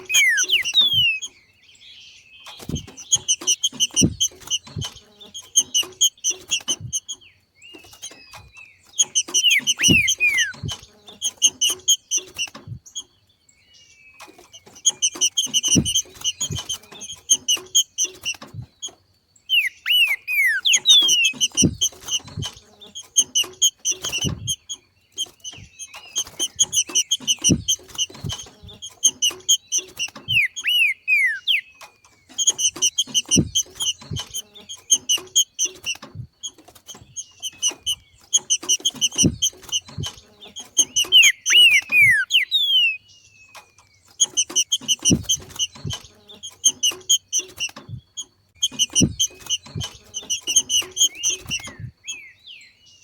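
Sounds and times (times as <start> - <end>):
bird chattering call: 0.0 - 1.4, 7.8 - 12.6, 19.5 - 36.0, 37.2 - 43.1, 48.6 - 52.4
down-slurred bird whistles: 0.0 - 1.4, 7.8 - 12.8, 19.5 - 22.5, 29.0 - 31.8, 40.8 - 43.1, 46.7 - 52.8
short dull thumps: 2.6 - 7.2, 7.8 - 13.0, 14.2 - 19.0, 20.6 - 30.6, 31.8 - 42.9, 43.6 - 52.0.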